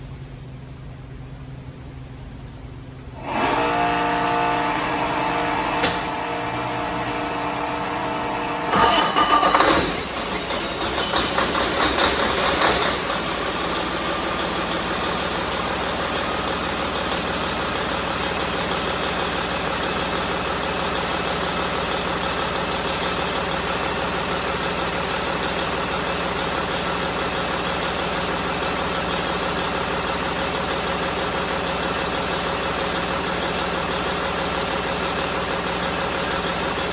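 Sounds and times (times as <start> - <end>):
diesel engine starting and idling: 0.0 - 36.9
starter motor cranking: 8.7 - 13.8.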